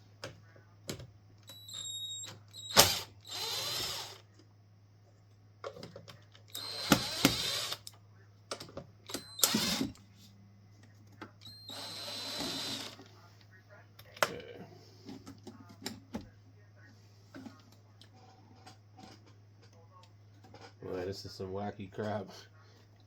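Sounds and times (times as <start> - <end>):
cordless screwdriver whining: 1.5 - 4.2, 6.5 - 7.9, 9.1 - 10.0, 11.4 - 13.0.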